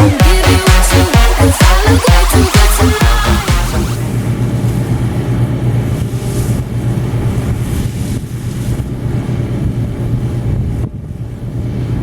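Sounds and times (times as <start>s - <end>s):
diesel engine droning: 0.0s - 12.0s
wind noise: 4.0s - 12.0s.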